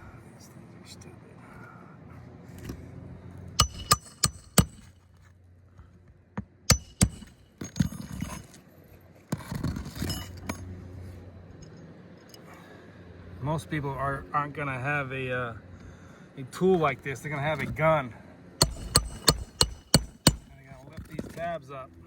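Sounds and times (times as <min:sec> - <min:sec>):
roofing tool striking nails: 0:03.6 - 0:04.9, 0:06.7 - 0:07.9, 0:18.6 - 0:20.6
shingles scraping and rustling: 0:09.3 - 0:10.5.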